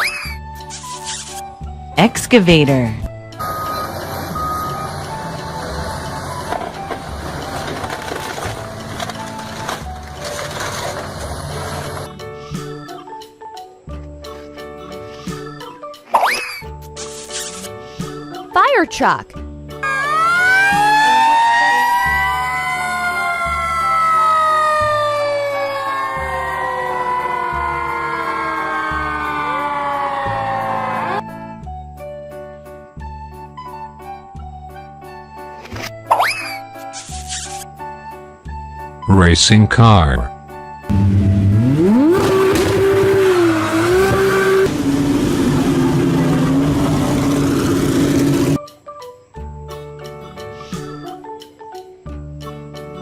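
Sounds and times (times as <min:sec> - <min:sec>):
fire truck siren wailing: 0:03.4 - 0:07.4, 0:19.8 - 0:31.3, 0:40.9 - 0:48.6
racing car engine revving: 0:40.9 - 0:48.6.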